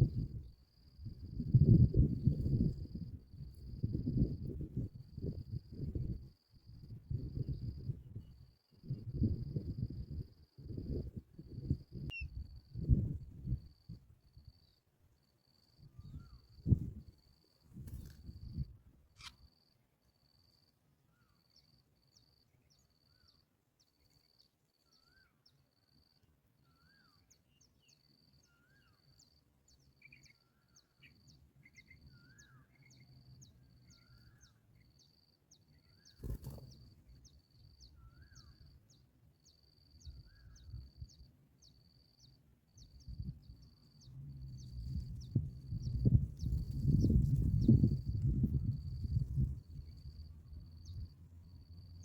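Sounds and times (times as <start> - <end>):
insect chirping: 0.0 - 52.0
soft bird chirps: 7.1 - 12.9, 15.5 - 19.5, 20.5 - 52.0.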